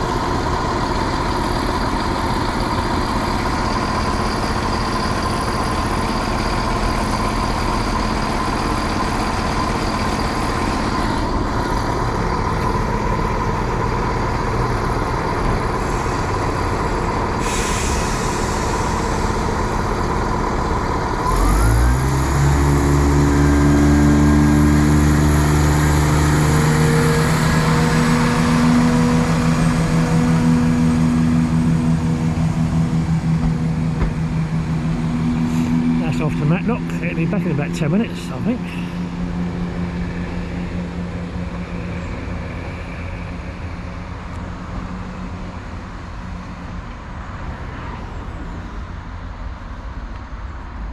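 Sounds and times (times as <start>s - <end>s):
diesel train engine: 0.0s - 50.9s
air hiss: 17.4s - 19.7s.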